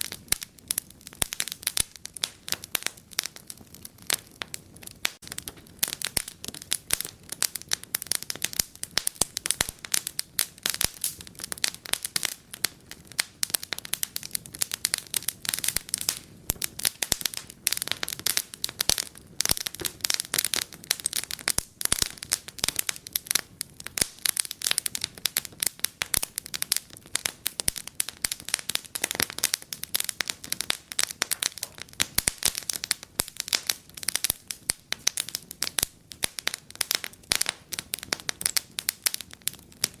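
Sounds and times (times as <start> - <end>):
wood fire crackling and popping: 0.0 - 40.0.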